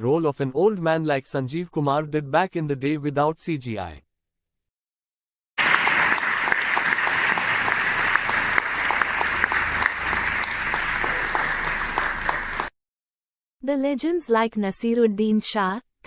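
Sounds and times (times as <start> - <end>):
studio audience applause and cheering: 5.6 - 12.7.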